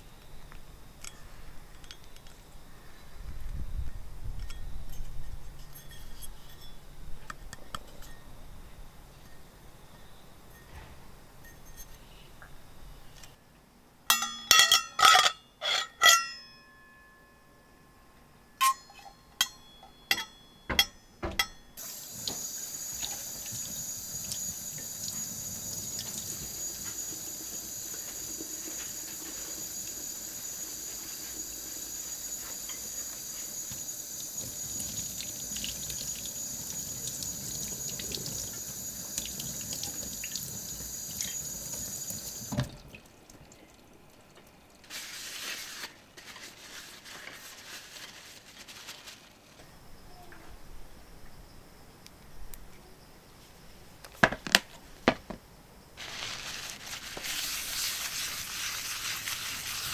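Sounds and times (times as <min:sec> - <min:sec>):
fat sizzling in a frying pan: 0:21.8 - 0:42.6, 0:44.8 - 0:48.9, 0:56.0 - 0:59.9.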